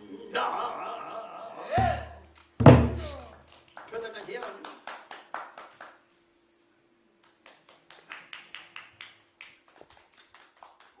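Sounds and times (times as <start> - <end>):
audience hand claps: 3.0 - 6.0, 7.3 - 11.0.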